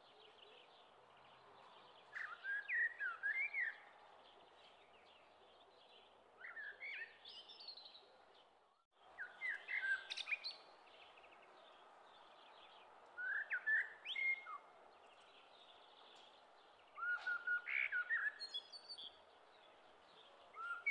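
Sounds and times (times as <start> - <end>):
birds chirping and whistling: 16.9 - 19.1.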